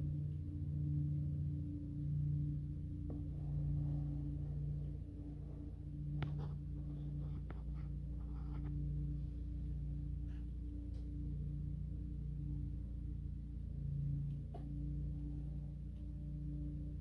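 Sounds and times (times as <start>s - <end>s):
low two-pitch hum: 0.0s - 17.0s
light scratching: 3.0s - 10.8s.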